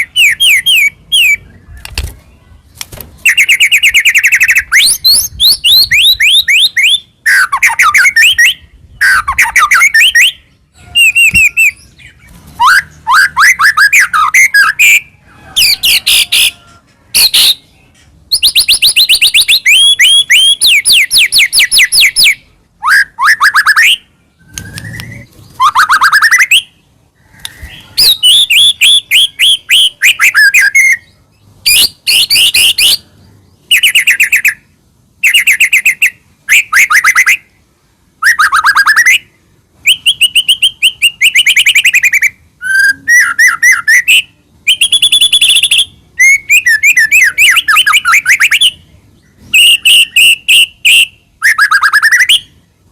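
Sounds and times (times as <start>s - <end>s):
songbird singing trilled phrases: 0.0s - 37.6s, 38.2s - 52.7s.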